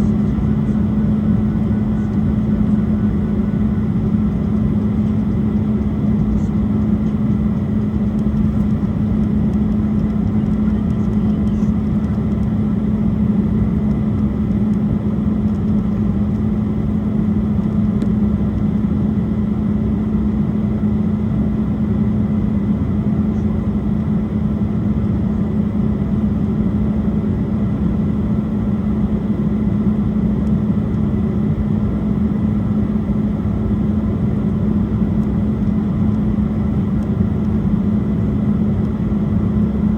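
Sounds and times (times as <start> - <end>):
airliner engine drone: 0.0 - 39.9.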